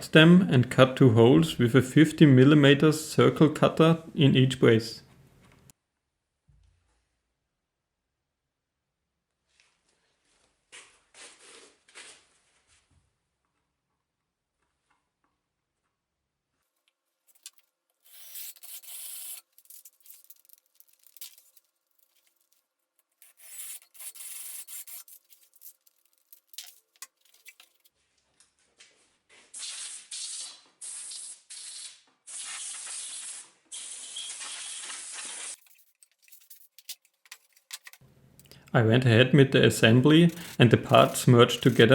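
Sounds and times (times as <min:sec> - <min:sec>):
sandpaper rubbing on plywood: 0:40.3 - 0:41.9.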